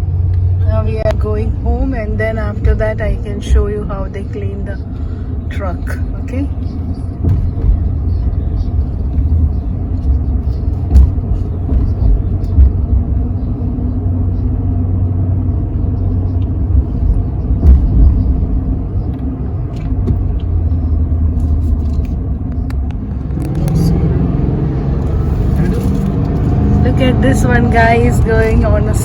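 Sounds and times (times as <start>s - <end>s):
truck engine and tyre rumble: 0.0s - 29.0s.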